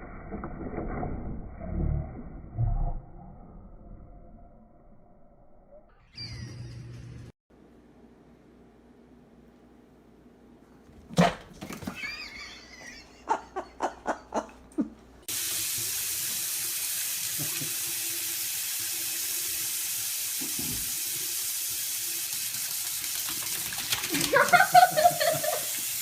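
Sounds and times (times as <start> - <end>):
tap water running: 15.2 - 26.0.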